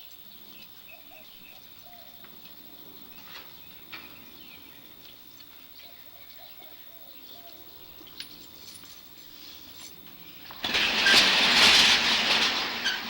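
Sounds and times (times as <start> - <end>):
faint bird chirps: 0.0 - 10.4.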